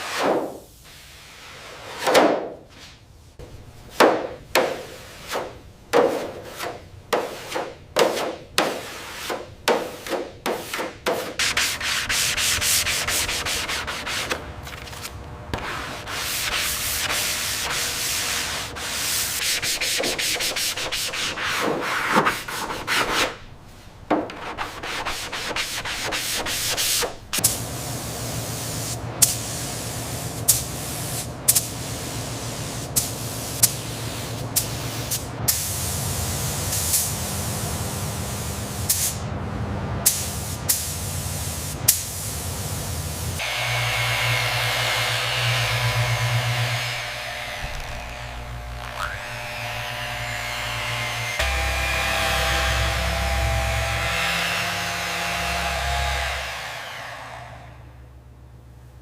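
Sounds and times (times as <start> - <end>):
rubbing strokes like sanding: 6.2 - 14.4, 15.6 - 23.4, 24.3 - 27.2
low hum: 45.7 - 54.4.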